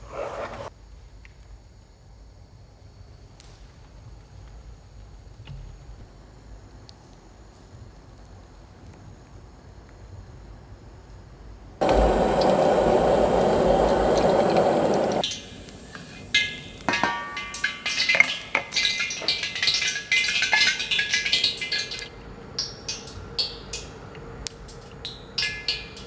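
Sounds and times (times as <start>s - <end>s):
dishes and utensils clattering: 11.8s - 23.9s, 24.7s - 26.0s
water running from a tap: 11.8s - 24.0s, 24.6s - 26.0s.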